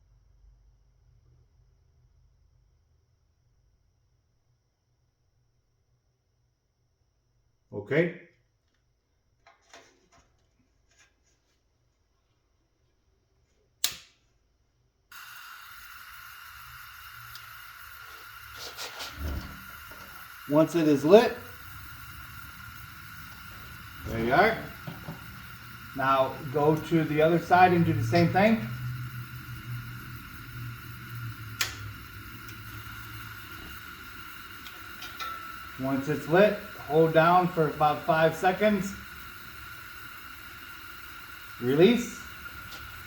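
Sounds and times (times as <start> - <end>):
heater igniter click: 13.8 - 14.2, 15.1 - 43.0
sharp click: 13.8 - 14.2
gas burner hissing: 15.1 - 43.0.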